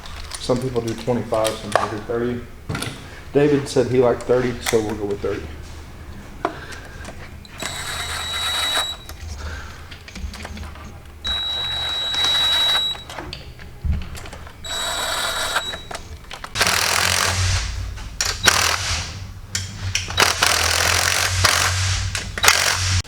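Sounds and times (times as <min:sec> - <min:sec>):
impact wrench whirring: 0:06.4 - 0:13.2, 0:14.0 - 0:23.0.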